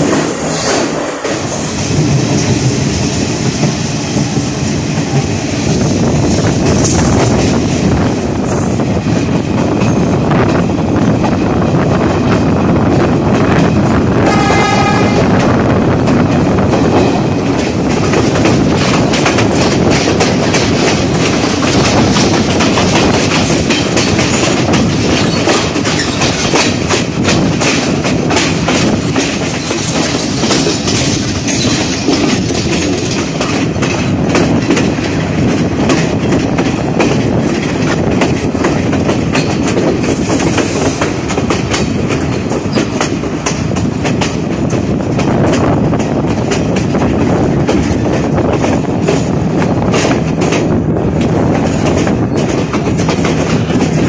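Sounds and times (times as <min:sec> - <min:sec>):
train running noise: 0:00.0 - 0:54.0
wind rush: 0:00.0 - 0:54.0
wheels clattering over rail joints: 0:16.0 - 0:54.0.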